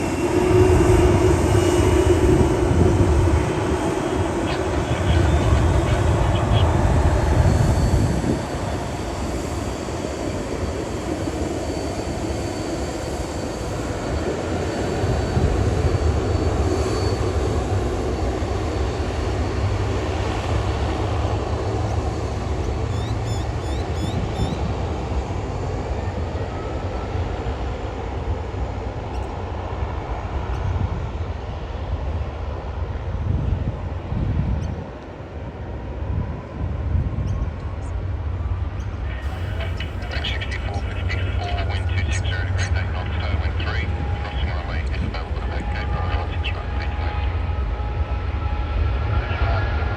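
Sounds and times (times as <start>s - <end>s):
faint high whine: 0.0s - 21.1s, 37.2s - 49.9s
jet engines rumbling: 0.0s - 49.9s.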